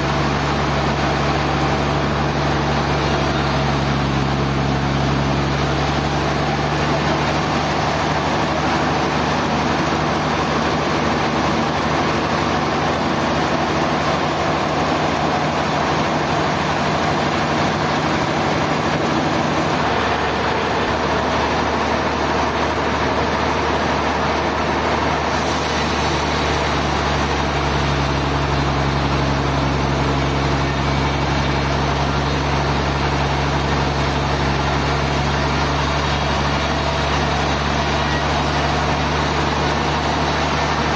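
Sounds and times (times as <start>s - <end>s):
sawmill machinery drone: 0.0s - 40.9s.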